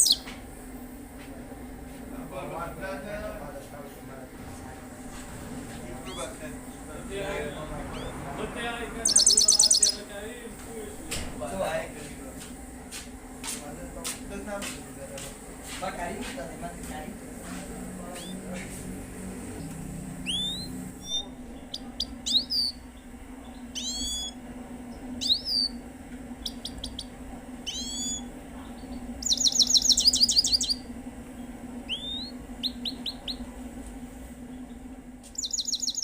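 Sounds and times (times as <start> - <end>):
goldfinch singing: 0.0 - 0.3, 5.9 - 8.3, 9.0 - 10.1, 17.5 - 18.6, 19.6 - 25.8, 26.4 - 33.5, 35.3 - 36.0
steady low hum: 0.0 - 36.0.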